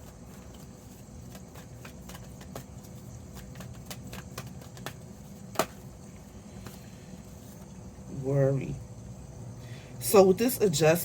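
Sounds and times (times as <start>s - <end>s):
cards clicking and tapping: 0.0s - 5.9s
low background hum: 0.0s - 11.0s.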